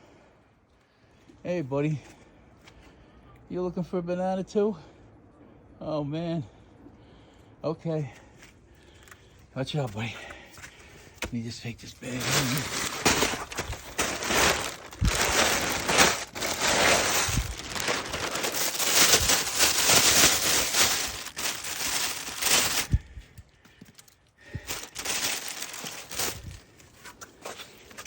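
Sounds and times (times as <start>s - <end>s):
bag rustling and crinkling: 12.0s - 28.0s.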